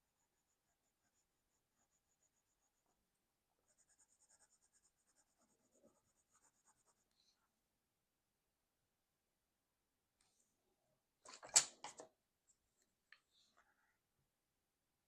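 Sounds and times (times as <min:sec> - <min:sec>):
pencil strokes on paper: 0:00.0 - 0:07.6.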